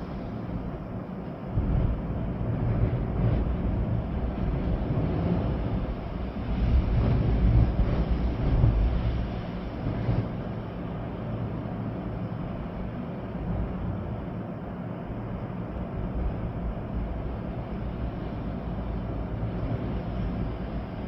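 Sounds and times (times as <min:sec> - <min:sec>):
rain: 0:00.0 - 0:21.0
storm wind blowing through trees: 0:00.0 - 0:21.0.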